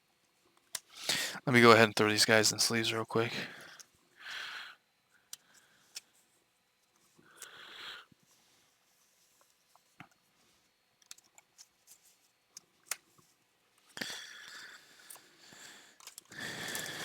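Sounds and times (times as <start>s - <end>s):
small clicks and ticks: 11.0s - 15.3s, 16.0s - 17.0s.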